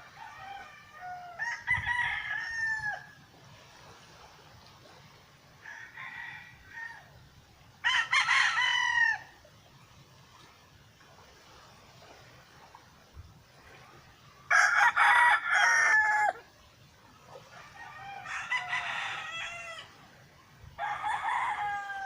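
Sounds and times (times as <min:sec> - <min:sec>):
roosters crowing: 0:00.0 - 0:03.2, 0:07.8 - 0:09.3, 0:14.5 - 0:16.4, 0:17.5 - 0:20.0, 0:20.8 - 0:22.0.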